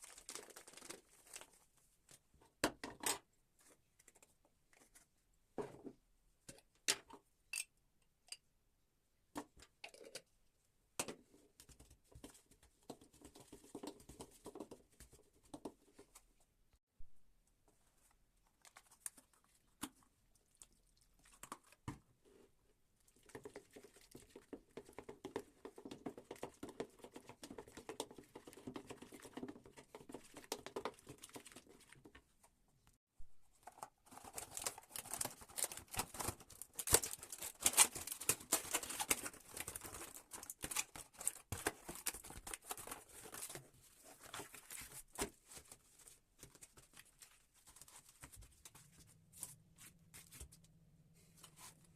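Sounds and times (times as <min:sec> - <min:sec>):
rustling and crackling handling noise: 0:33.3 - 0:51.9.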